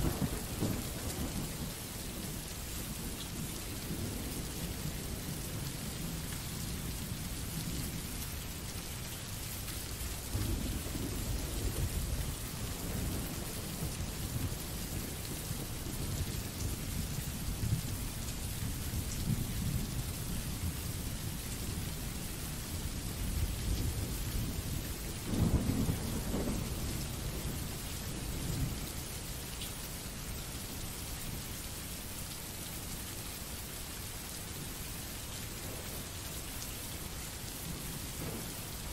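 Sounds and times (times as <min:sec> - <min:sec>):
thunder rumbling: 0:00.0 - 0:01.8, 0:37.6 - 0:38.9
steady rain hiss: 0:00.0 - 0:38.9.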